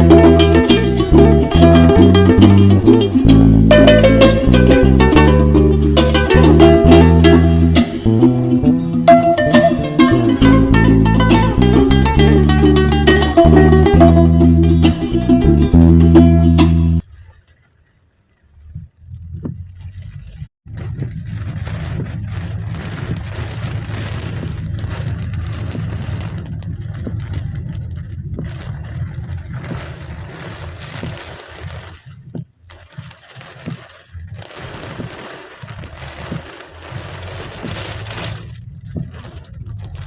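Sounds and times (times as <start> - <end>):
rain falling: 0.0 - 40.0
wind buffeting the microphone: 18.5 - 40.0.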